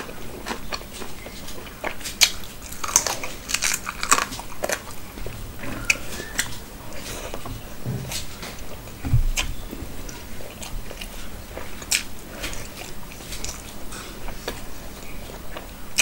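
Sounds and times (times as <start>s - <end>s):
crunchy bites: 0.0s - 8.7s
person chewing: 0.0s - 16.0s.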